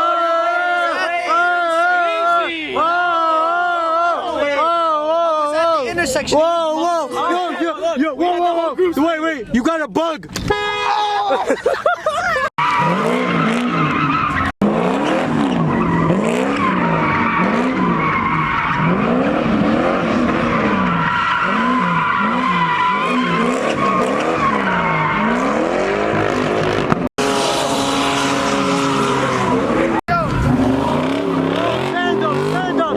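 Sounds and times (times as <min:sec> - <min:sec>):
tires squealing: 0:12.1 - 0:32.9
car engine revving: 0:12.6 - 0:32.9.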